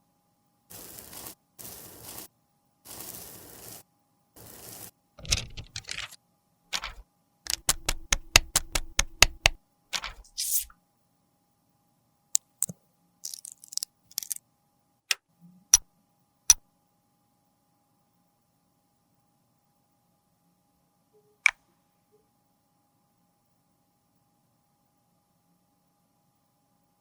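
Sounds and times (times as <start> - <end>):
cases tapping: 6.8 - 10.2
short scrape: 10.2 - 10.7.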